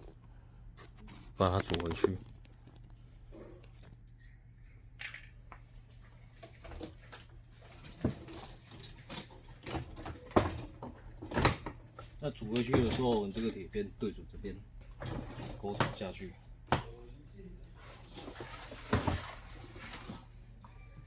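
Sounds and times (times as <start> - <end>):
dishwasher parts knocking and clattering: 7.7 - 11.9, 12.6 - 13.5, 14.9 - 16.9, 18.2 - 20.1.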